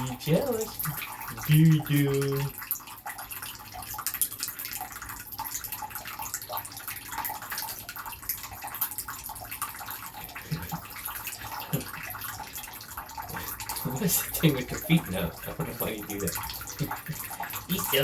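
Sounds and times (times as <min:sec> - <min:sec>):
water splashing in a basin: 0:00.0 - 0:18.0.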